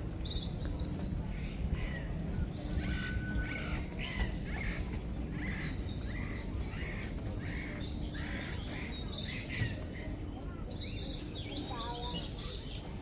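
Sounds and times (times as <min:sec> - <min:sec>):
many small birds chirping: 0:00.2 - 0:13.0.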